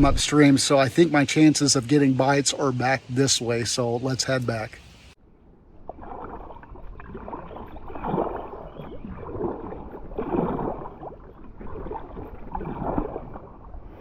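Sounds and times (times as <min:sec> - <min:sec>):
kayak paddle splashing water: 0:05.7 - 0:14.0.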